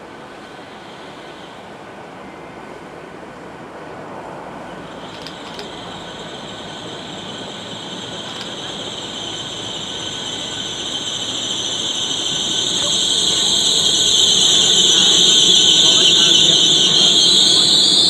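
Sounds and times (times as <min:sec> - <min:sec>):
train running noise: 0:00.0 - 0:18.0
high steady squeal: 0:04.6 - 0:18.0.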